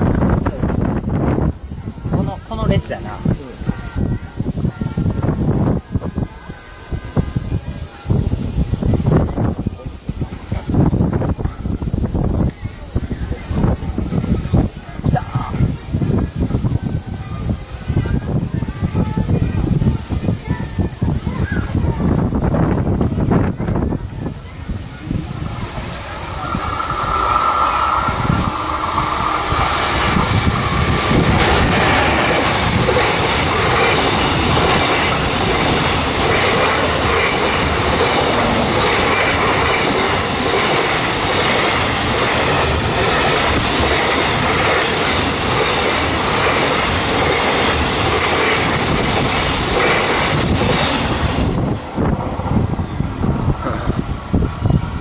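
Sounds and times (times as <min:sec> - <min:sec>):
freight train passing: 0:00.0 - 0:55.0
wheels clattering over rails: 0:22.3 - 0:54.8.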